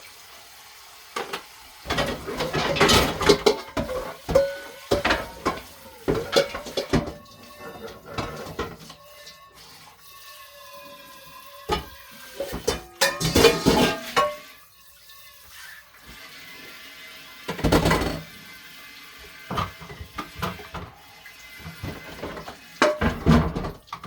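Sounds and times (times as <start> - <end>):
kitchen tap running into sink: 0.0 - 24.0
dishes knocking: 1.2 - 7.2, 7.8 - 8.9, 11.7 - 14.4, 17.5 - 18.2, 21.8 - 24.0.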